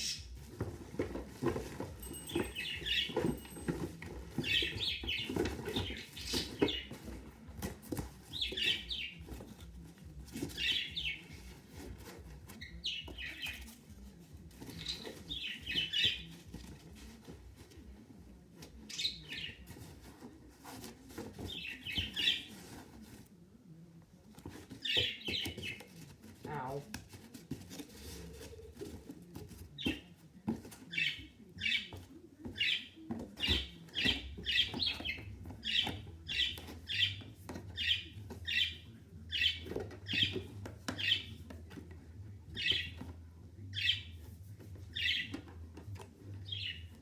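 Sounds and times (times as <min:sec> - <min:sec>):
packaging rustling and knocking: 0:00.2 - 0:18.0
pet bird chirping: 0:02.0 - 0:07.2, 0:10.4 - 0:11.6, 0:14.6 - 0:16.4, 0:18.8 - 0:19.8, 0:30.9 - 0:41.8, 0:42.5 - 0:45.5, 0:46.4 - 0:47.0.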